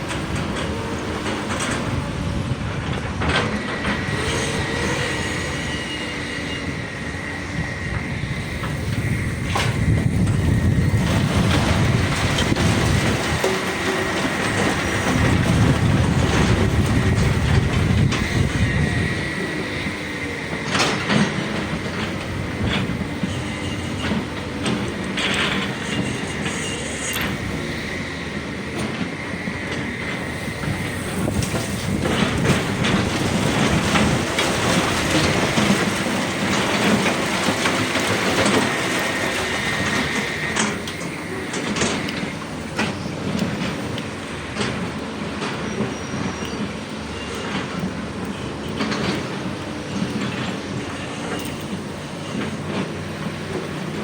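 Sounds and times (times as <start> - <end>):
steady high whine: 0.0 - 35.6
excavator diesel engines: 0.0 - 54.0.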